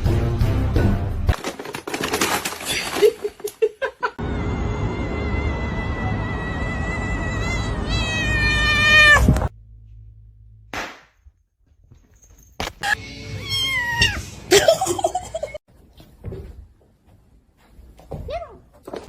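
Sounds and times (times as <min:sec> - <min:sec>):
cat meowing: 0:06.3 - 0:09.5, 0:13.3 - 0:14.2.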